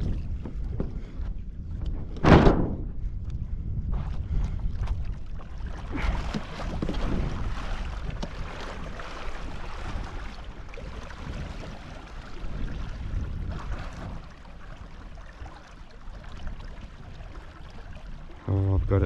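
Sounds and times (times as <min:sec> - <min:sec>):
wind buffeting microphone: 0:00.0 - 0:19.0
water splashing: 0:04.8 - 0:19.0.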